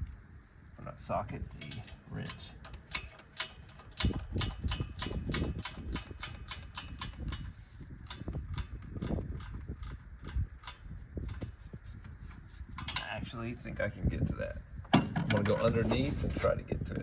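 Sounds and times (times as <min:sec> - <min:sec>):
wrench clicking: 0:01.6 - 0:11.5.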